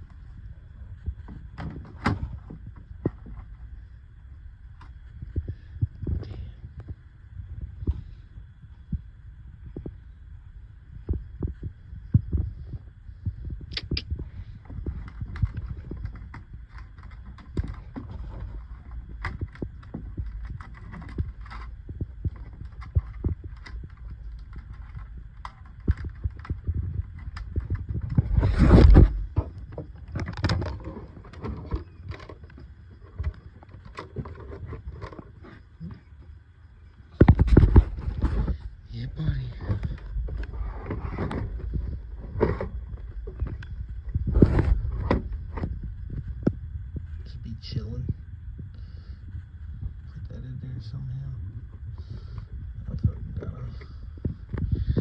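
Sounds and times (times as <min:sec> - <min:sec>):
scraping and rustling: 0:14.2 - 0:36.2, 0:37.2 - 0:47.2
gear knocking and thumping: 0:14.6 - 0:35.3.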